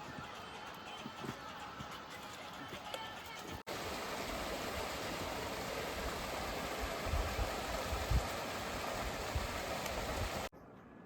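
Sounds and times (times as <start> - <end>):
stream water rushing: 3.7 - 10.5.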